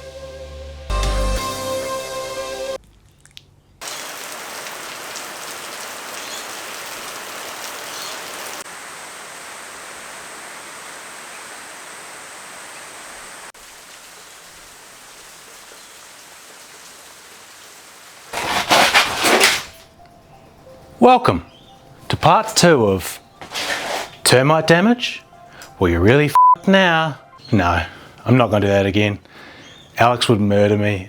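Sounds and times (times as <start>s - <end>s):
steady rain-like hiss: 3.8s - 18.4s.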